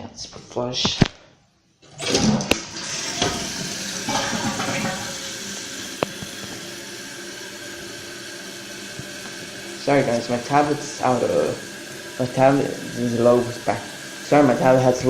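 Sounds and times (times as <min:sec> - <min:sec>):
fill valve hissing: 0:01.8 - 0:15.0
toilet flush click: 0:01.8 - 0:15.0
water rushing from toilet tank: 0:01.8 - 0:15.0.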